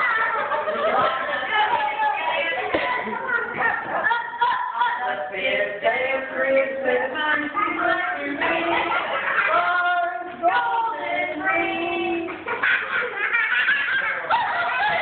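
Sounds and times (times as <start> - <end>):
people laughing: 0.0 - 4.6, 8.3 - 10.4, 11.9 - 15.0
people singing held notes: 5.0 - 12.5.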